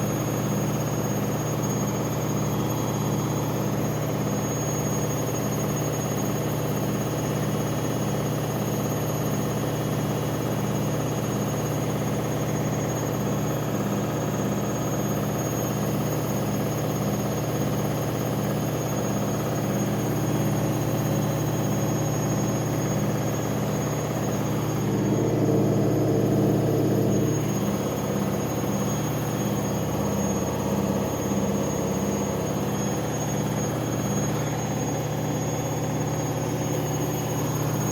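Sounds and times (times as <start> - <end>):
washing machine drum spinning: 22.4 - 33.5.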